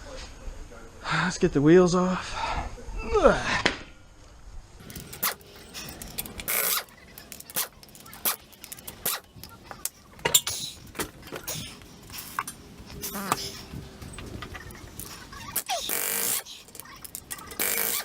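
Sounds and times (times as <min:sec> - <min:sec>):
metal tools clanking and clicking: 0:04.8 - 0:09.6, 0:12.3 - 0:18.0.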